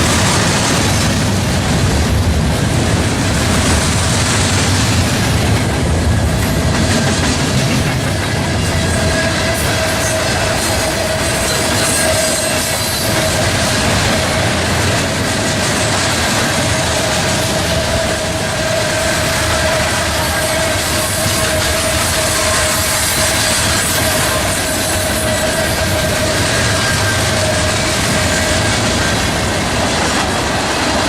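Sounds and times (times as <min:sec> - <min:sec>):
train wheel whine: 0:00.0 - 0:31.0
train wheels rumbling and clattering: 0:00.0 - 0:31.0.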